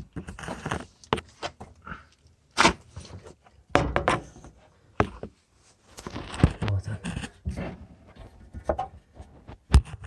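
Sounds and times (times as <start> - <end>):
handling knocks and thumps: 2.6 - 5.4.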